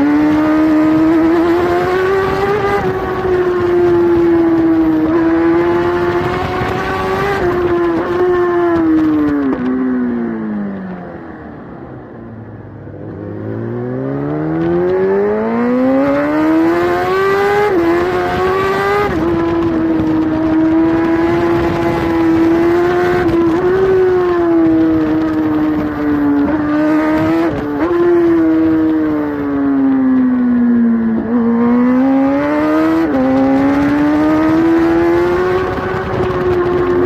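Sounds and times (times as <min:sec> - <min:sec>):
motorcycle engine revving: 0:00.0 - 0:11.6, 0:12.3 - 0:37.0.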